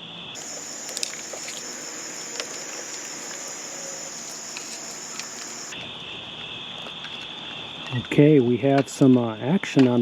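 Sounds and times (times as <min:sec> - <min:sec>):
night insects trilling: 0:00.4 - 0:05.8.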